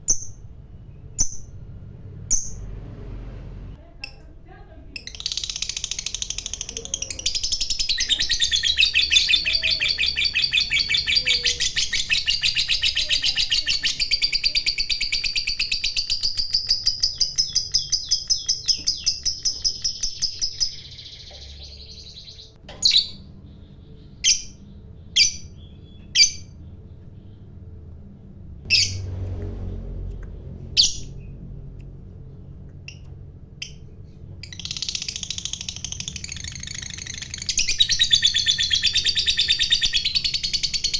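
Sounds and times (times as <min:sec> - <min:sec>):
lovebird chattering trill: 0:05.0 - 0:26.6, 0:34.4 - 0:40.9.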